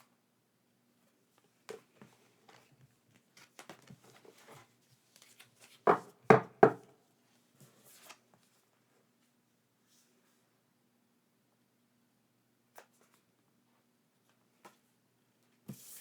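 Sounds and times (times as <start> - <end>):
loud knocks on a hard surface: 5.9 - 6.8.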